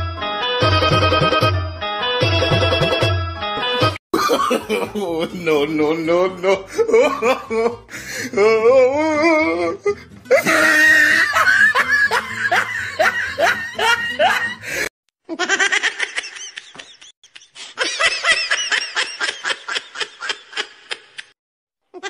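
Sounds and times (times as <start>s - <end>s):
high-pitched laughter: 10.3s - 14.6s
rapid laughter clip: 10.3s - 21.3s.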